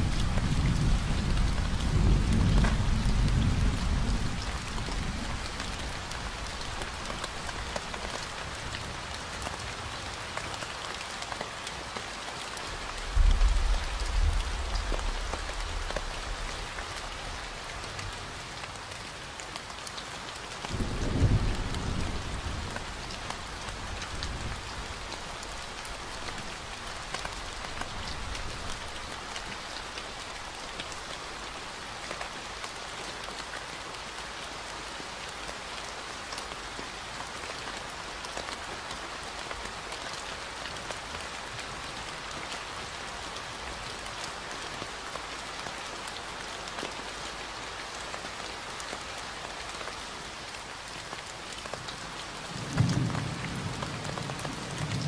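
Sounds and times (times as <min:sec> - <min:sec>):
low rumble of thunder: 0:00.0 - 0:06.0, 0:13.0 - 0:17.1, 0:20.8 - 0:23.0
rain falling on foliage: 0:00.0 - 0:55.0.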